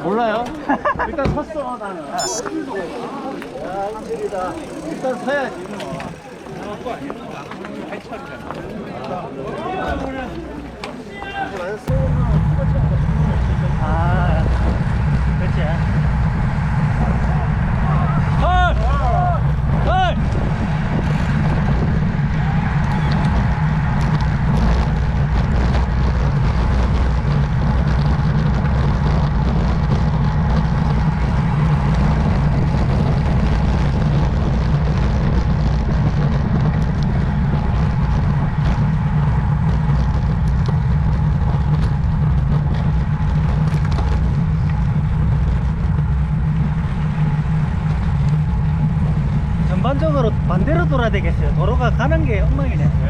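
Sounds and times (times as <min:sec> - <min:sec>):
bike tyres rumbling on road: 0:02.5 - 0:53.0
wind rushing over microphone: 0:11.9 - 0:53.0.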